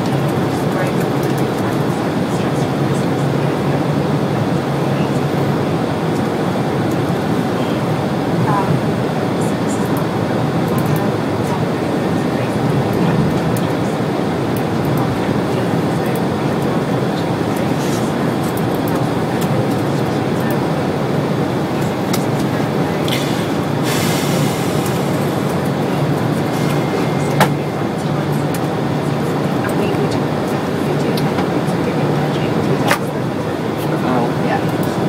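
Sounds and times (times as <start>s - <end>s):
train wheels rumbling on track: 0.0s - 35.0s
hiss: 23.1s - 25.3s.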